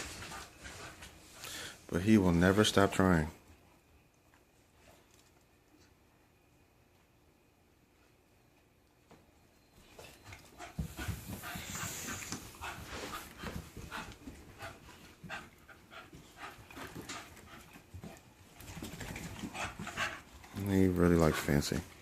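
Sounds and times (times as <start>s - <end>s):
puppies scuffling: 0.0s - 3.6s, 9.0s - 22.0s
puppies panting: 10.0s - 22.0s.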